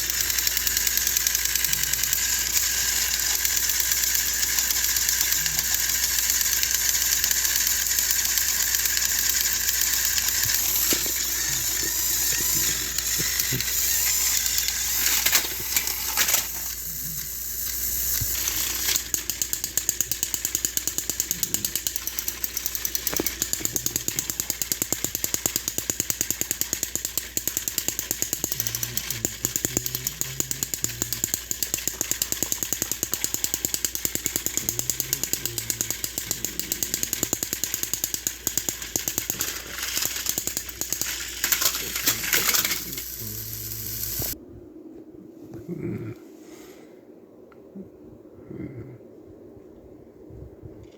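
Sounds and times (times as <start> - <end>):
toy train motors whirring: 0.0 - 44.4.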